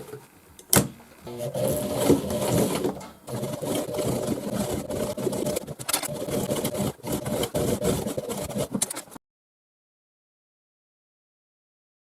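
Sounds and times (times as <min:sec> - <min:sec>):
sewing machine stitching: 0:01.3 - 0:09.2.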